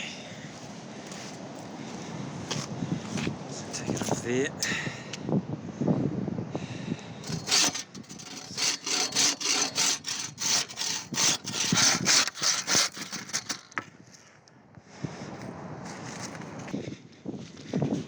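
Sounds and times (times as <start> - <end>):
hand saw cutting log: 7.2 - 13.8.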